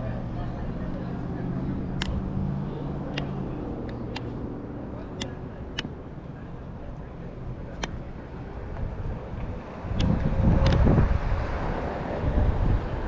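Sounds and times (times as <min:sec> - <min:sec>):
vehicle engine rumbling: 0:00.0 - 0:13.0
sharp clicks: 0:02.0 - 0:02.2, 0:03.1 - 0:04.4, 0:05.2 - 0:06.0, 0:07.8 - 0:08.0.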